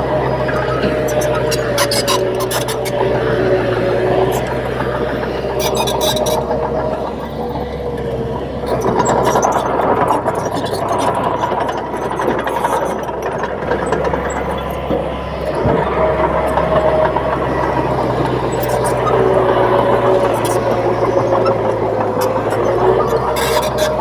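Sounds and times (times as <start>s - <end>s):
bulldozer diesel engine under load: 0.0s - 24.0s
held whine: 0.0s - 24.0s.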